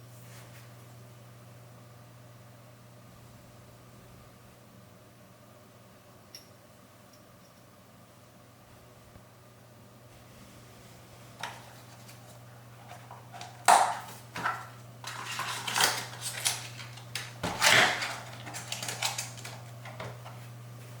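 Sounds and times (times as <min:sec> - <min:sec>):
steady low hum: 0:00.0 - 0:21.0
packaging clicks taps and rustles: 0:11.4 - 0:20.4.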